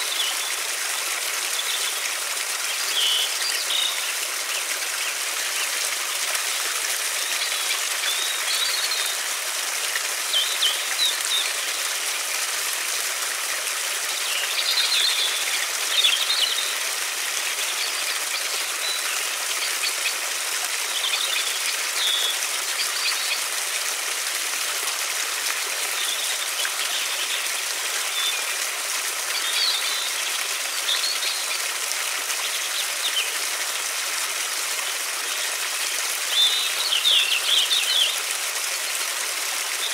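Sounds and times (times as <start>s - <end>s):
small birds chirping: 14.0s - 23.5s, 29.2s - 33.4s, 36.2s - 38.2s.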